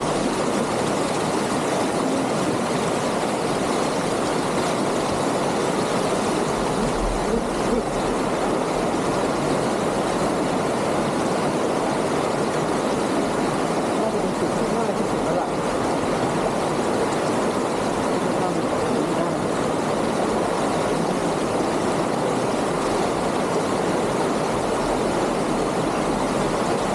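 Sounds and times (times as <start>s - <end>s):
water rushing over rocks: 0.0s - 26.9s.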